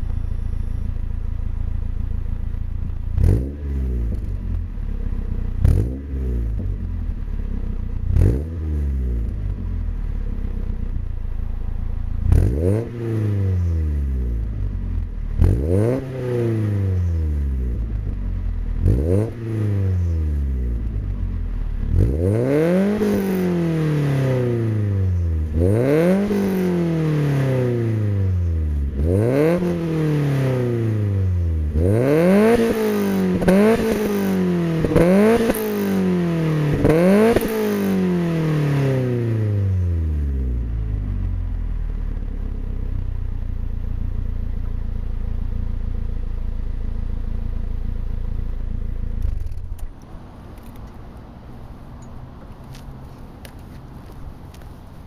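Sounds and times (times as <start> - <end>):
car engine idling: 0.0 - 22.2, 39.7 - 55.0
car engine revving: 0.0 - 55.0.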